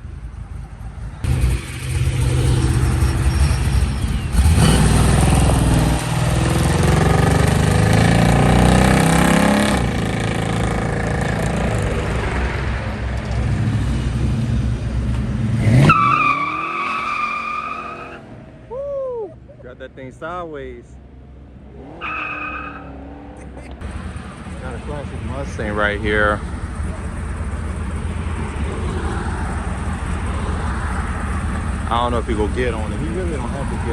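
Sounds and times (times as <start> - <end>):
car engine revving: 1.2 - 18.5, 21.5 - 33.9
tyres squealing: 21.8 - 23.6.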